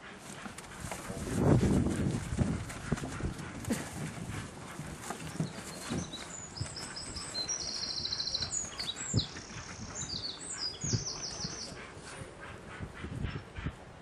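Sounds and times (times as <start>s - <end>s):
songbird warbling and trilling: 5.4s - 11.9s.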